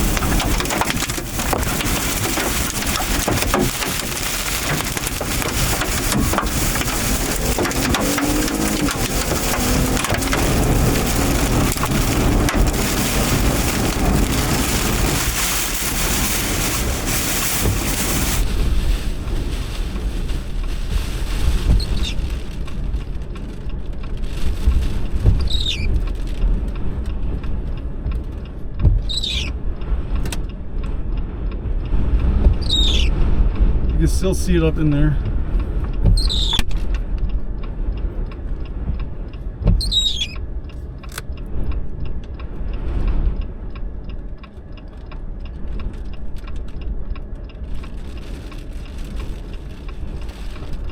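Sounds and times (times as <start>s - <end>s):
windshield wiper squeaks: 0.0s - 19.0s, 20.8s - 22.6s, 25.2s - 26.2s, 28.8s - 29.6s, 32.5s - 33.2s, 36.0s - 36.9s, 39.6s - 40.4s
rain or hail on car: 0.0s - 50.9s
road rumble: 0.0s - 50.9s.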